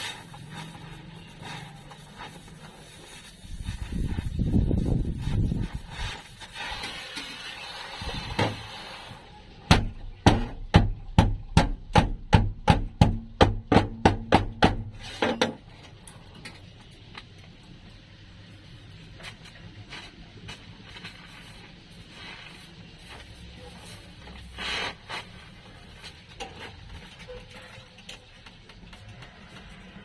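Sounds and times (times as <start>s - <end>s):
hammer striking sheet metal: 9.7s - 15.6s.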